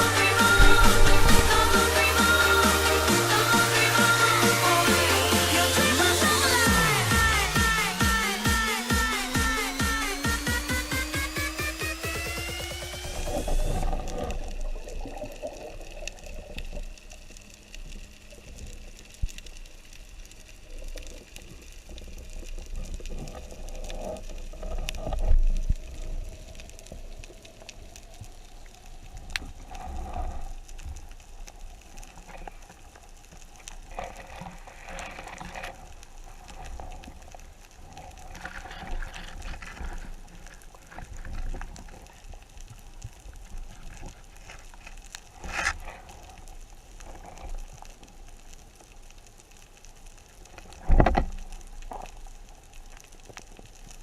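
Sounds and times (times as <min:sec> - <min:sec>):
underwater water rushing: 0:00.0 - 0:54.0.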